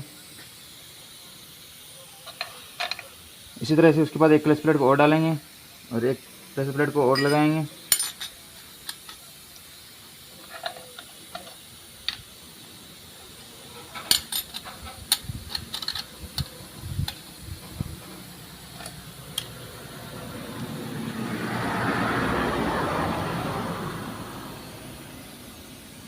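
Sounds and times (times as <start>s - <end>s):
passing vehicle: 17.6s - 26.0s.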